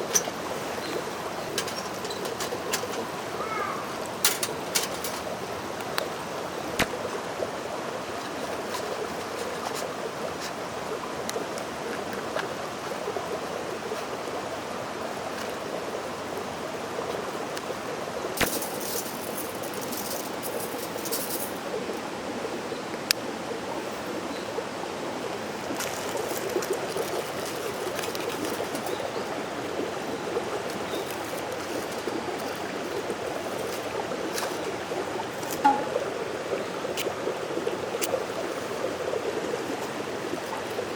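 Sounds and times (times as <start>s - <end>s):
sharp clicks and crackles: 0.0s - 3.2s, 4.2s - 5.3s, 18.4s - 21.6s, 26.1s - 29.2s
mountain stream rushing: 0.0s - 40.9s.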